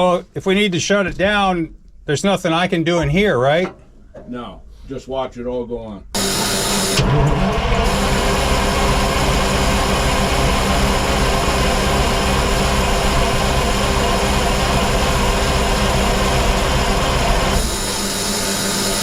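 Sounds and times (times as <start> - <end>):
diesel engine cranking on starter: 6.2 - 19.0.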